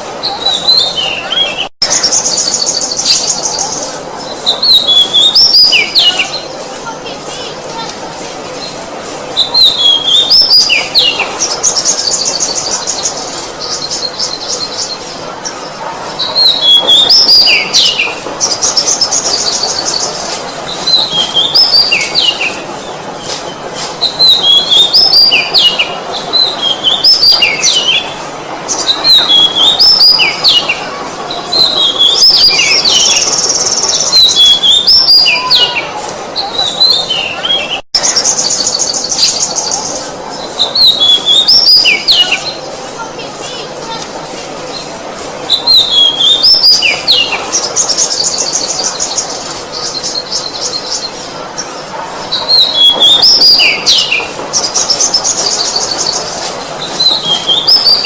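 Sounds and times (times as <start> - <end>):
steady hiss: 0.0 - 58.0
bird singing whistled notes: 0.2 - 6.5, 9.4 - 15.0, 24.0 - 28.1, 40.6 - 42.6, 45.5 - 51.1, 52.5 - 56.2, 56.9 - 58.0.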